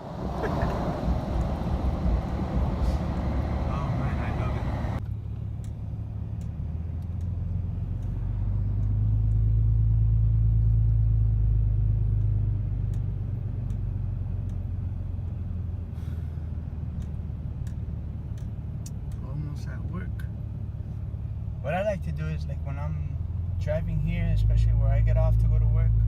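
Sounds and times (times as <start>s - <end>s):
diesel engine drone inside cab: 0.0s - 26.0s.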